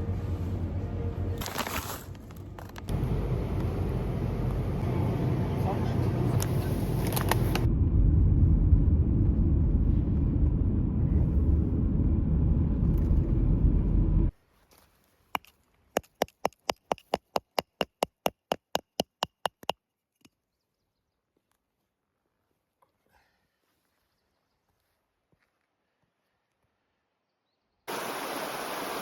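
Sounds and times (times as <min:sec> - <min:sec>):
car road rumble: 0:00.0 - 0:14.3
sharp taps: 0:15.4 - 0:19.8.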